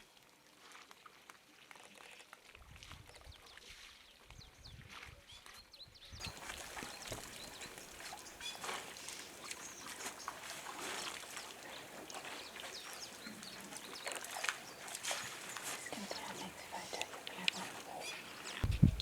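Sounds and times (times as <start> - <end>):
animals chirping and calling: 6.2 - 19.0.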